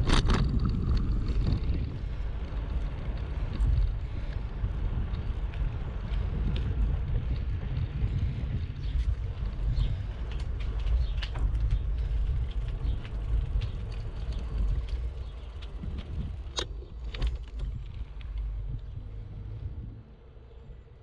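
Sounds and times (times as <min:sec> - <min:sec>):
bicycle clicks and rattles: 0:00.0 - 0:19.8
wind rumble on microphone: 0:00.0 - 0:21.0.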